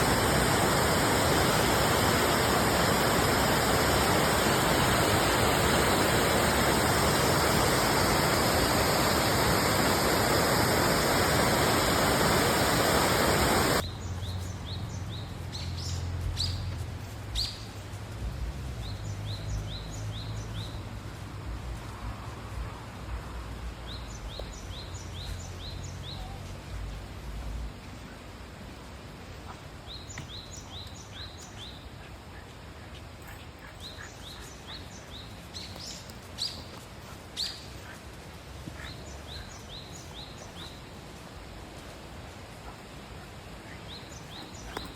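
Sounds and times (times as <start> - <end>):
waterfall rushing: 0.0 - 13.8
bird chirping: 43.7 - 44.9.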